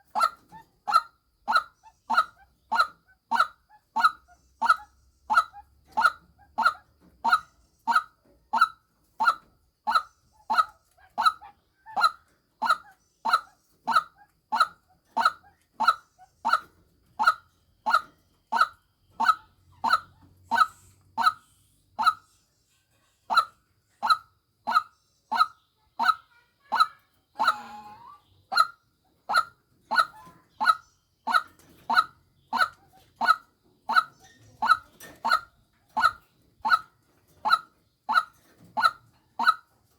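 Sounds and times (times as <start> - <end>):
waterhen calls: 0.0 - 21.4, 26.8 - 36.9.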